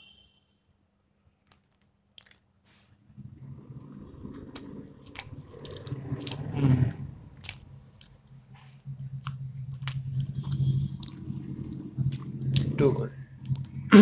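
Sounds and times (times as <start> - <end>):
close-up chewing: 1.5 - 2.5, 4.5 - 13.9
low hum: 3.0 - 14.0.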